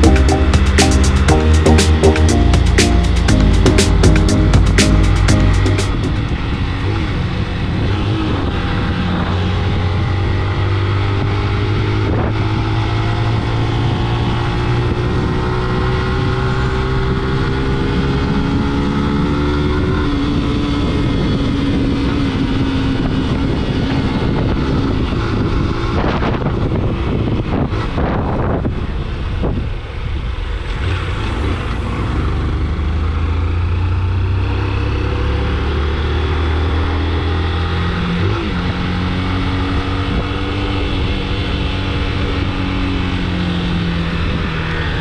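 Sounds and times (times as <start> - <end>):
wind buffeting microphone: 20.3 - 32.8.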